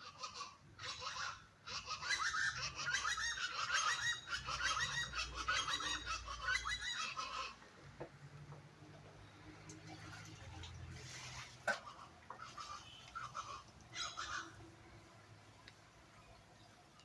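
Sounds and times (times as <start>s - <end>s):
flock of birds calling: 0.0s - 7.6s, 11.8s - 14.7s.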